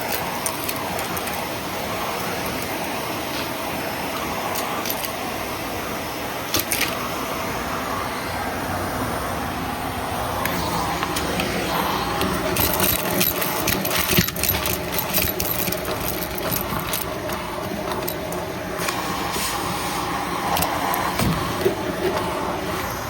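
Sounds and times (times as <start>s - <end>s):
vacuum cleaner running: 0.0s - 23.0s
debris crackling and rattling: 12.2s - 18.8s.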